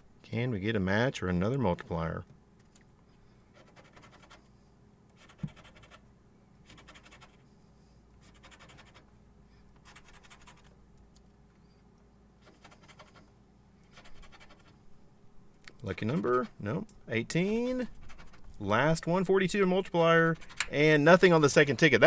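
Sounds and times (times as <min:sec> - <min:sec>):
scratching lottery ticket coating: 0:03.5 - 0:04.4, 0:08.2 - 0:09.1, 0:09.8 - 0:10.8, 0:12.4 - 0:14.9, 0:15.8 - 0:16.6, 0:17.6 - 0:18.7, 0:20.3 - 0:20.9.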